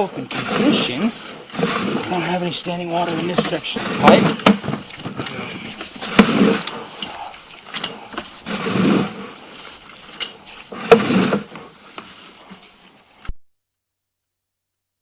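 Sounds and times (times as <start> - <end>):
cable scraping and rattling in pipe: 0.0 - 13.3
sharp clicks and knocks: 0.3 - 9.2.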